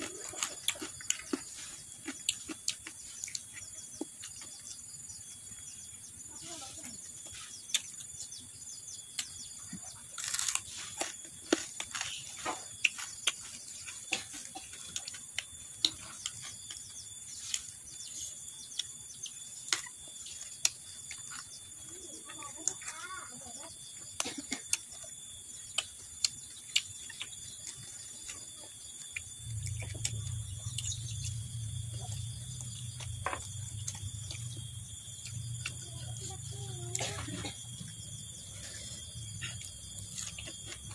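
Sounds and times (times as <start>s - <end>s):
crunching and chewing: 0.0s - 40.9s
insects chirring: 0.0s - 40.9s
low hum: 29.1s - 40.9s.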